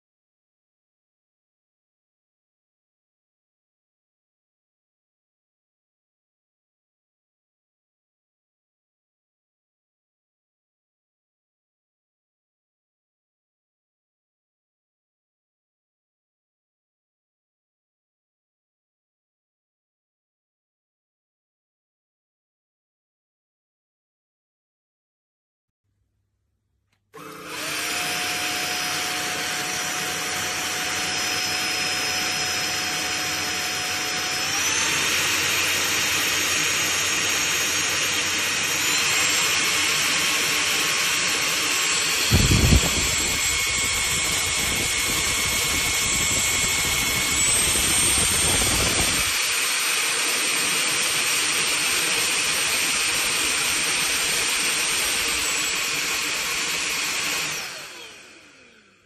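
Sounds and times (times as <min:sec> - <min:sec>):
vacuum cleaner motor whine: 0:27.2 - 0:59.0.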